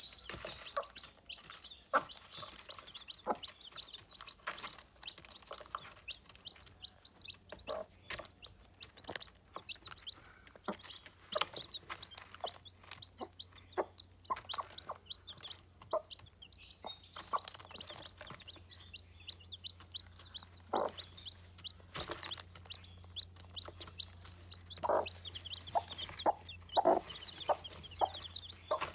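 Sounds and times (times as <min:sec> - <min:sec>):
chicks peeping: 0:00.0 - 0:28.9
low clucking calls: 0:19.3 - 0:28.9.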